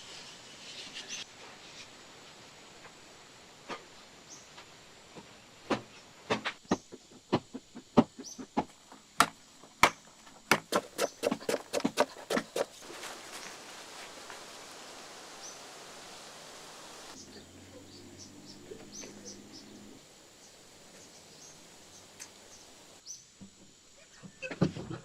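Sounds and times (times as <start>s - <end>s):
sharp knocks: 8.0s - 12.7s.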